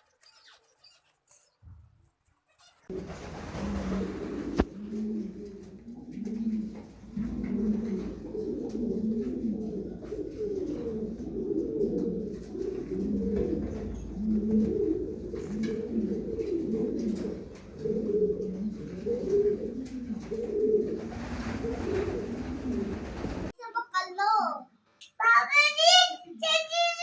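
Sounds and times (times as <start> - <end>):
birds warbling: 2.9 - 23.5.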